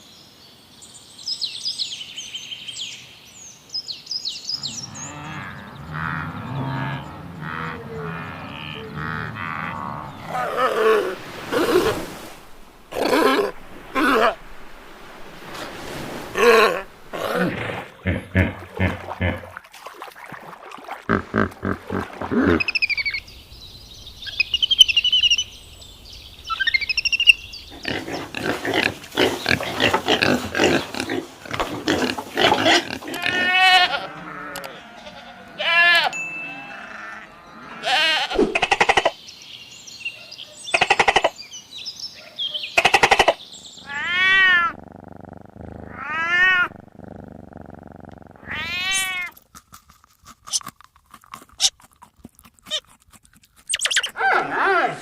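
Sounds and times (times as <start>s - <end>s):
animal cries rising and falling: 4.8s - 12.3s, 12.9s - 14.4s, 33.1s - 38.7s, 43.8s - 44.8s, 45.7s - 46.8s, 48.4s - 49.4s
high chirping: 22.6s - 27.8s, 53.7s - 54.2s.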